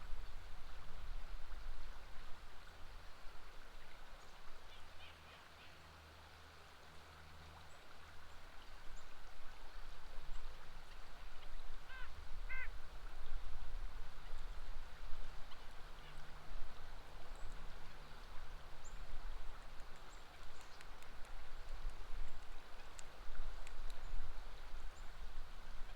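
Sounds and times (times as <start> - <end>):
river water flowing: 0.0 - 25.9
bird quacking or honking: 11.9 - 12.7.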